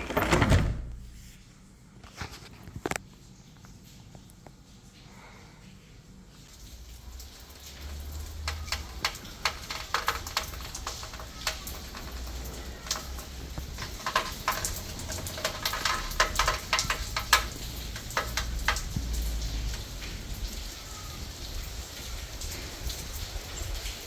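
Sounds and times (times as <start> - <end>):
raindrops striking close by: 2.1 - 24.0
rain falling: 2.9 - 24.0.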